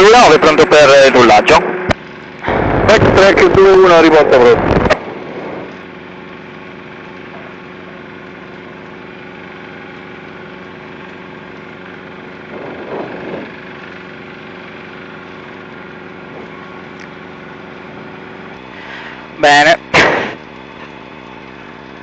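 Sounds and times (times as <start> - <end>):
light aircraft engine running: 0.0 - 22.0.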